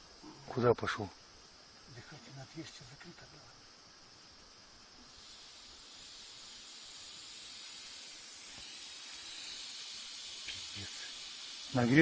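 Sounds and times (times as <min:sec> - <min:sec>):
pressurised air hissing from tank: 0:05.0 - 0:12.0.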